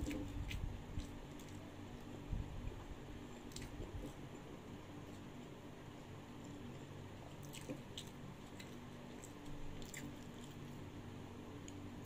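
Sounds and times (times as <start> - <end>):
person chewing wetly: 0.0 - 2.2, 3.4 - 4.3, 4.9 - 10.9
steady low hum: 0.0 - 12.0.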